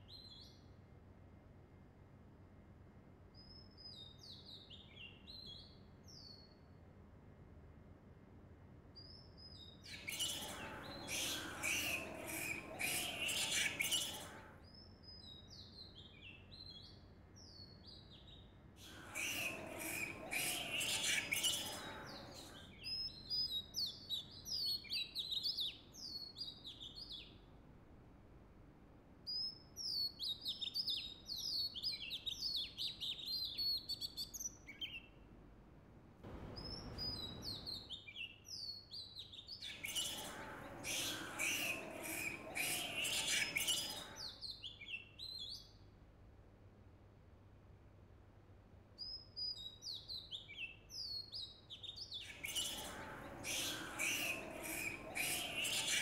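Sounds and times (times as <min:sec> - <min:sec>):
birds chirping: 0:09.8 - 0:14.6, 0:18.8 - 0:25.4, 0:36.3 - 0:45.2, 0:52.0 - 0:56.0
harsh scratchy bird calls: 0:09.9 - 0:14.6, 0:18.8 - 0:22.9, 0:36.3 - 0:38.7, 0:39.5 - 0:44.8, 0:52.0 - 0:56.0.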